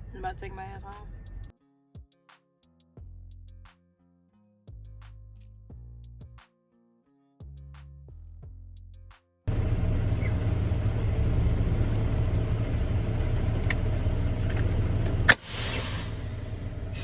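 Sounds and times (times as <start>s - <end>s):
truck engine rumble: 9.5s - 17.0s
hiss: 15.3s - 17.0s.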